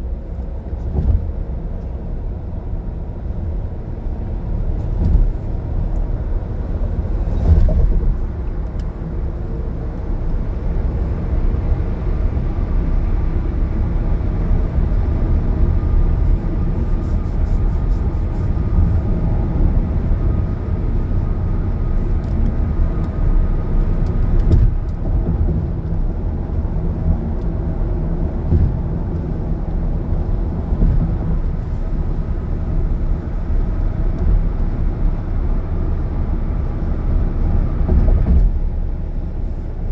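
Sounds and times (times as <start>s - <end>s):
road and engine rumble: 0.0s - 39.9s.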